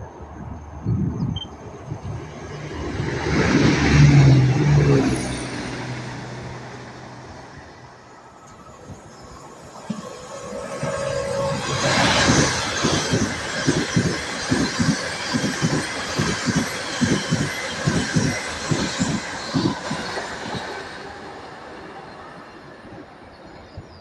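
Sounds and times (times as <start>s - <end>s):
train rushing noise: 0.0s - 24.0s
train wheels clacking: 8.4s - 21.5s.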